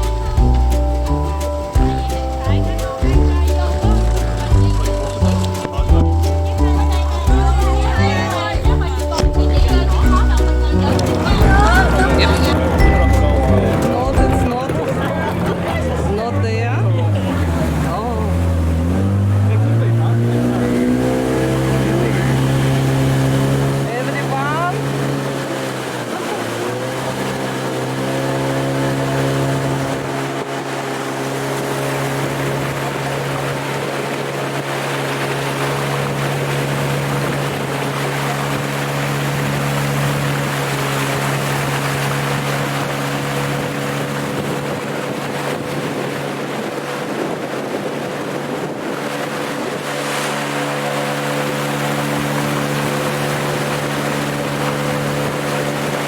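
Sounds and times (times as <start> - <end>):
engine running: 0.0 - 56.0
wind noise: 42.4 - 56.0.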